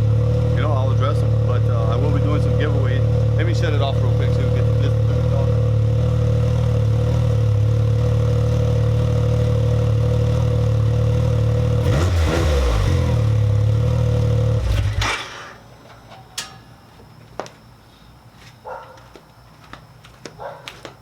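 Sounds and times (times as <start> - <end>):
engine idling and revving: 0.0 - 15.6.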